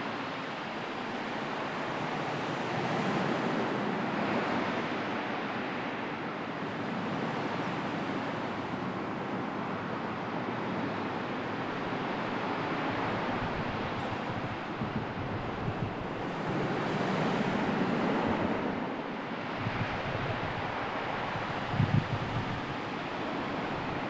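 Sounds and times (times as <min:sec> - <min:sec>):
sea waves washing in: 0:00.0 - 0:24.0
wind blowing: 0:11.7 - 0:24.0.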